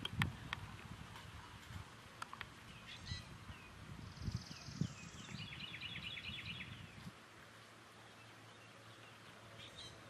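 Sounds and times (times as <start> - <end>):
birds chirping: 2.2 - 7.1, 7.8 - 10.0.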